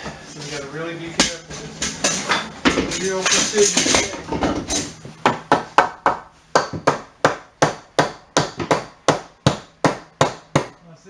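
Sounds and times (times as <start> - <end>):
hammer knocking wood: 5.2 - 10.8.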